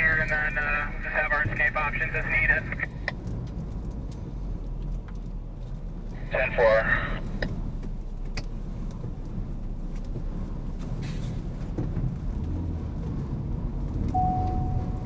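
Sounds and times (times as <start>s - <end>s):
car engine and road noise: 0.0s - 15.0s
electronic beep: 14.2s - 15.0s.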